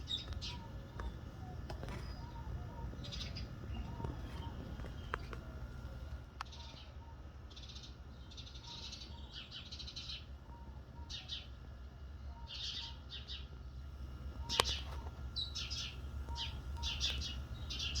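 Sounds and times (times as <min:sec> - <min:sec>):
steady low rumble: 0:00.0 - 0:08.6, 0:13.2 - 0:18.0
birds chirping: 0:00.0 - 0:18.0
soft low paired bird notes: 0:00.0 - 0:18.0.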